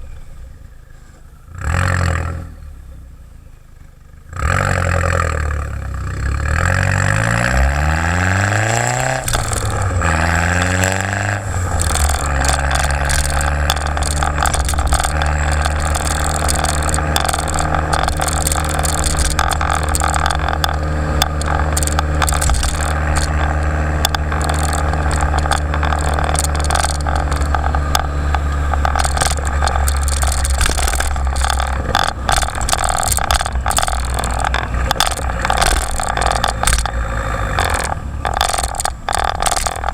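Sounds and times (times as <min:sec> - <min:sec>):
car engine revving: 0:04.3 - 0:39.9
car engine idling: 0:09.0 - 0:39.9.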